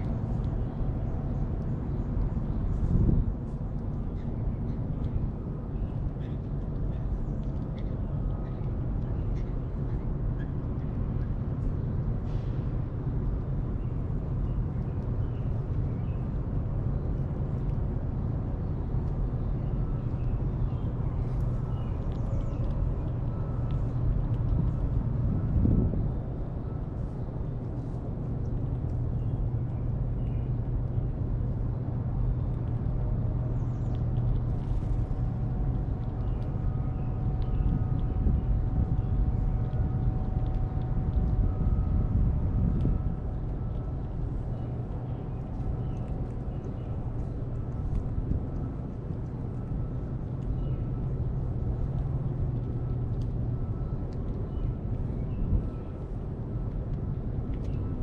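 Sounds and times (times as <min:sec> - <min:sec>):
faint steady hum: 0:00.0 - 0:58.0
low outdoor background rumble: 0:00.0 - 0:58.0.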